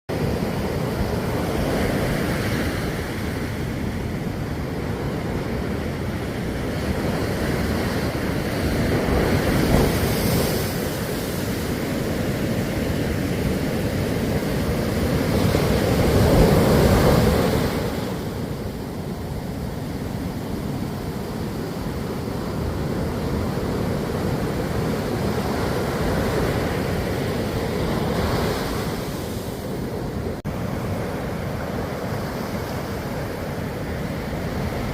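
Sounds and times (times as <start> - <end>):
ocean waves on shore: 0.1 - 34.9.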